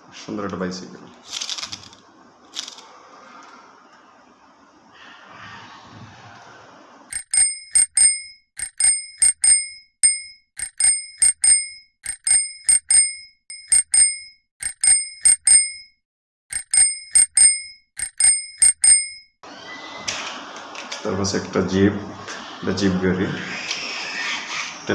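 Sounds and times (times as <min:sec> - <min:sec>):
bicycle bell dings: 0:07.1 - 0:19.4.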